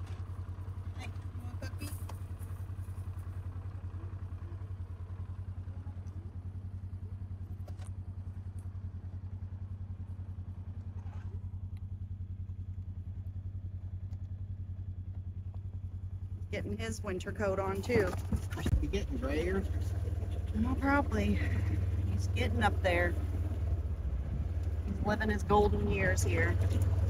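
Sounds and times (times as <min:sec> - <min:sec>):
small engine idling: 0:00.0 - 0:27.0.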